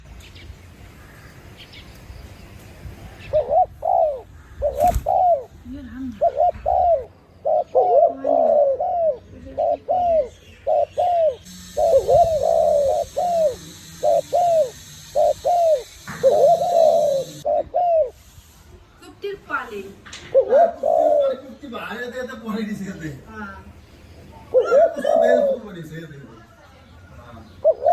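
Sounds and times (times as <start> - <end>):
dove cooing: 3.3 - 18.2, 20.3 - 21.6, 24.5 - 25.6, 27.6 - 27.9.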